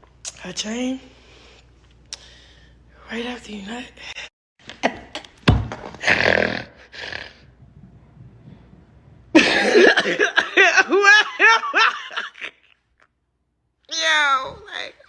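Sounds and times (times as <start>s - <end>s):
woman coughing: 9.4s - 10.6s.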